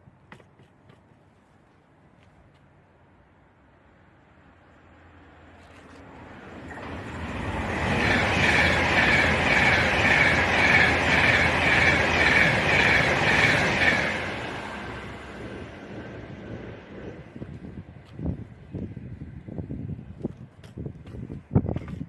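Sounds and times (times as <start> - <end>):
electric train passing: 4.8 - 20.1.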